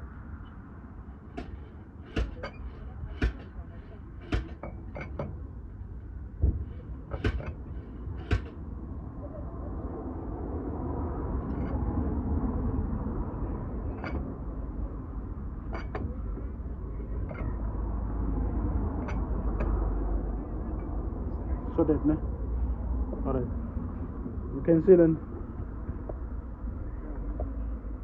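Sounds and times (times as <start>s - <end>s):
low vehicle rumble: 0.0s - 28.0s
sharp knocks and clicks: 1.3s - 5.4s, 6.4s - 8.6s.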